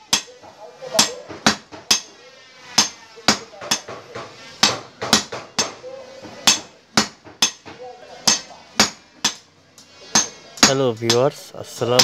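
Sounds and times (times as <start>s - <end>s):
hammer ringing on anvil: 0.0s - 2.2s, 2.8s - 5.8s, 6.4s - 9.4s, 10.1s - 11.3s.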